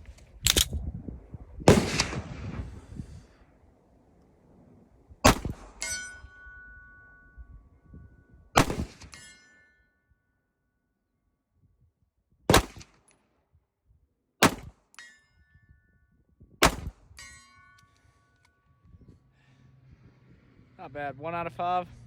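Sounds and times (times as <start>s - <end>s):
pistol shots with echo: 1.7s - 2.4s, 8.6s - 9.0s, 12.5s - 12.9s, 14.4s - 14.8s, 16.6s - 17.0s
steel plate ringing: 5.7s - 8.4s, 9.0s - 10.0s, 15.0s - 15.9s, 17.1s - 18.6s.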